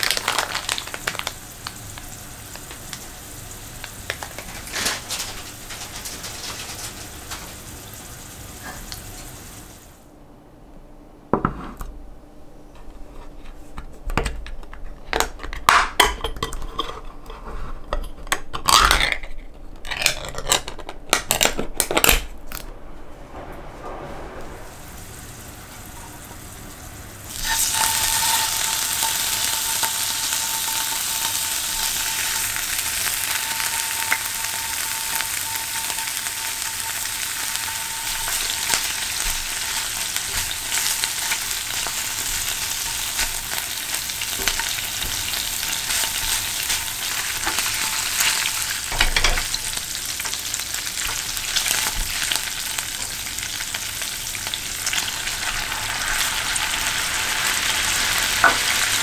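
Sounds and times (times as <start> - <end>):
fish sizzling in hot oil: 0.0 - 10.0, 24.8 - 59.0.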